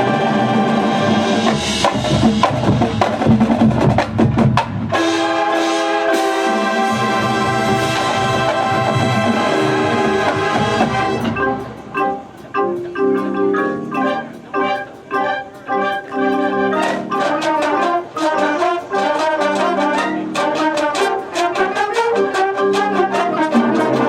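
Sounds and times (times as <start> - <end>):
mallet percussion: 0.0 - 24.0
marching band playing: 0.0 - 24.0
drum and percussion hits: 1.3 - 5.2.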